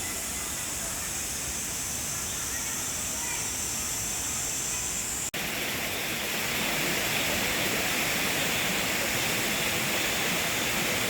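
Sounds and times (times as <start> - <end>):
stream rushing: 5.3 - 11.0.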